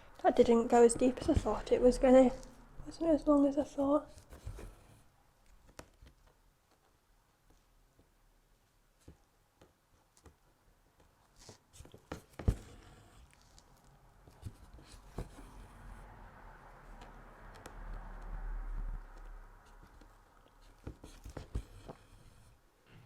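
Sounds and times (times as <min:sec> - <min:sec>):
needle poking fabric: 0:19.2 - 0:22.6.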